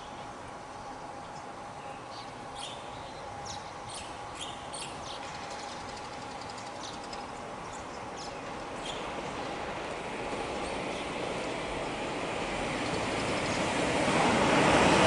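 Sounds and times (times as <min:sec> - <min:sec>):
approaching train: 0:00.0 - 0:15.0
steady outdoor noise: 0:00.0 - 0:15.0
birds chirping: 0:00.8 - 0:09.8.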